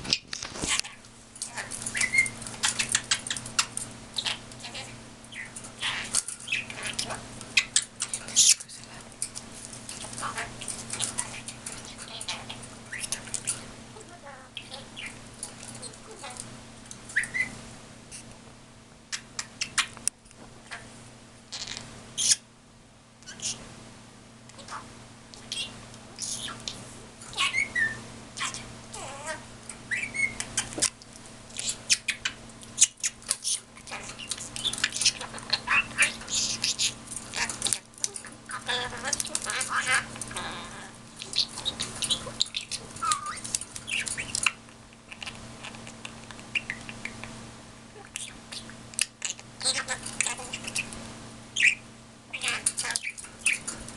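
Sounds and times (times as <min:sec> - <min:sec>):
pet bird chirping and squawking: 0:00.0 - 0:08.9, 0:09.9 - 0:16.5, 0:17.1 - 0:18.2, 0:19.2 - 0:20.0, 0:21.5 - 0:22.4, 0:23.3 - 0:23.6, 0:24.5 - 0:30.9, 0:31.5 - 0:47.2, 0:48.0 - 0:51.0, 0:51.6 - 0:53.7.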